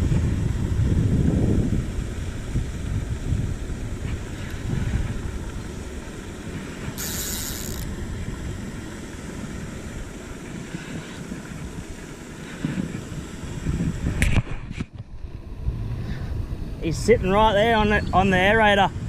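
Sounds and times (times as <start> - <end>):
wind buffeting microphone: 0.0 - 19.0
brief hiss: 7.0 - 7.8.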